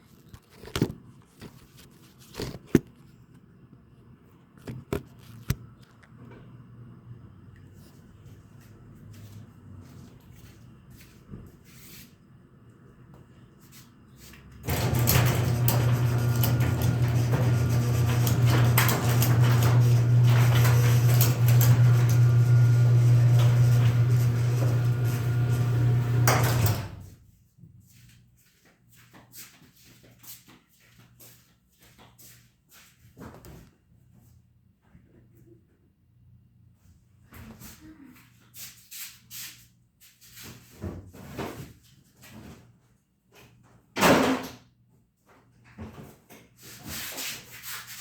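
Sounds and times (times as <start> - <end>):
garage door opener motor hum: 14.6 - 27.2.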